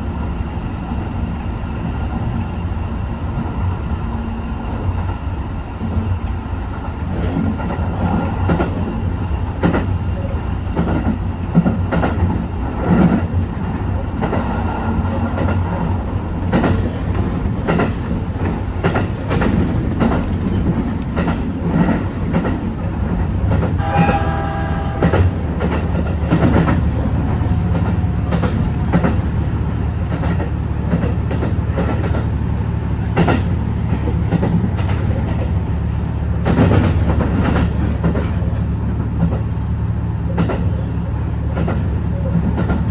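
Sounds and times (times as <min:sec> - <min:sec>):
train rumbling: 0:00.0 - 0:42.9
wheels clacking over rail joints: 0:06.2 - 0:39.5.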